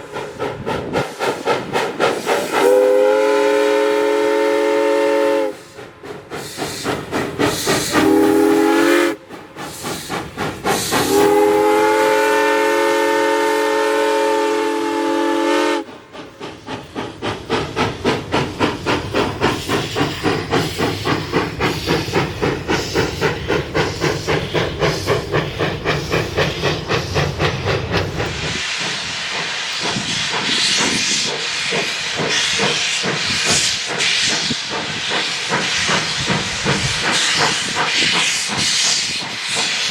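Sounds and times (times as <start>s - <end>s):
steam hiss: 0.0s - 39.9s
steam locomotive chuffing: 0.0s - 39.9s
steam locomotive chime whistle: 2.6s - 5.7s, 7.9s - 9.2s, 11.0s - 15.9s.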